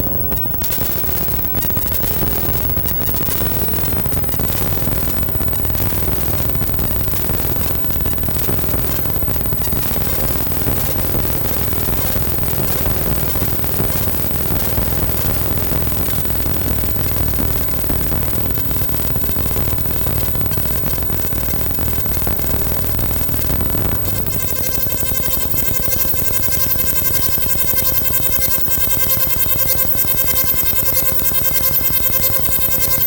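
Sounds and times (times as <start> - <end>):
noisy electronic synthesizer music: 24.2 - 33.0.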